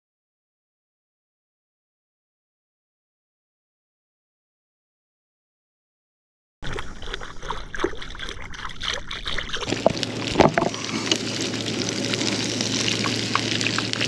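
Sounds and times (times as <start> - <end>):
food frying in hot oil: 9.5 - 14.0.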